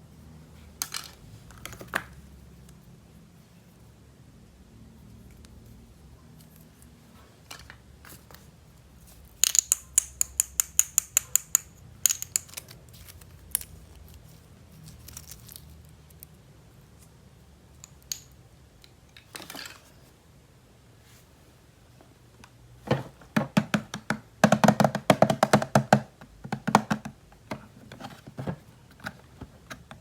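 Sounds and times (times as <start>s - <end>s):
plastic toy clicks: 9.4s - 12.8s.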